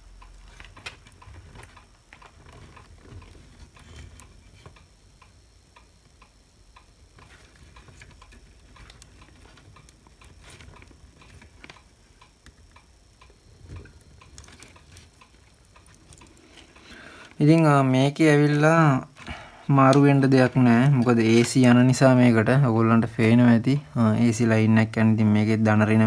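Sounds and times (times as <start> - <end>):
small parts and tools clicking: 0.2 - 17.5.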